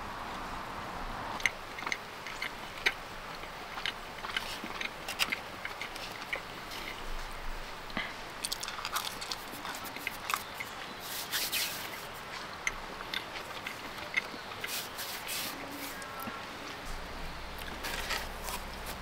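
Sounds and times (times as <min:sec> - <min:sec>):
person chewing food: 0:01.4 - 0:07.4, 0:08.0 - 0:10.9, 0:12.1 - 0:15.2.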